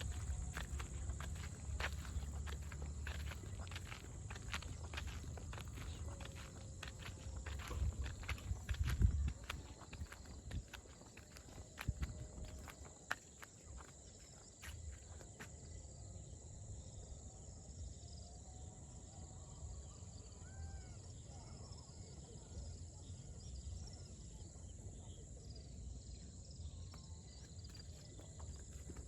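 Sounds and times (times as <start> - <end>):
low outdoor rumble: 0.0 - 10.6
insect chorus droning: 0.0 - 29.0.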